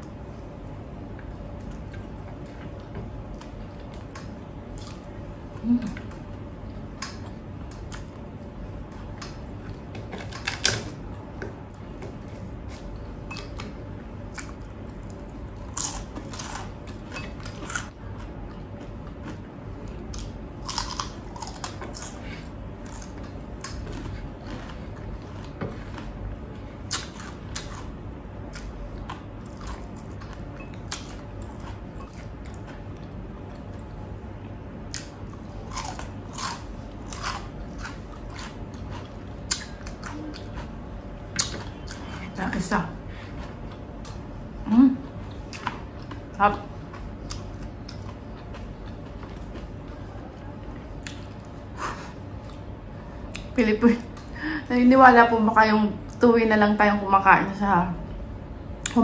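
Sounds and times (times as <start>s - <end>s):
faint hum: 0.0s - 59.0s
person chewing: 12.2s - 34.0s, 34.9s - 42.4s, 43.2s - 50.2s, 50.8s - 53.5s.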